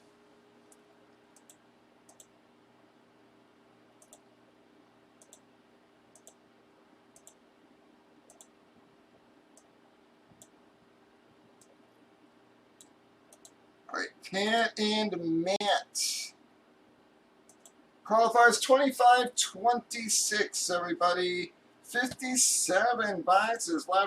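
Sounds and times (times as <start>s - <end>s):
faint steady hum: 0.0s - 24.0s
faint short clicks: 7.2s - 7.4s.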